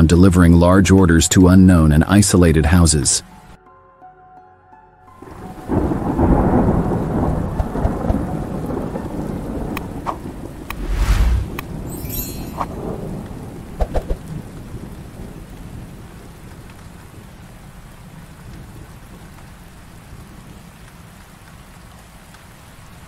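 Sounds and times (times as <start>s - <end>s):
thunder rumbling: 5.2s - 16.4s
steady rain: 5.2s - 23.0s.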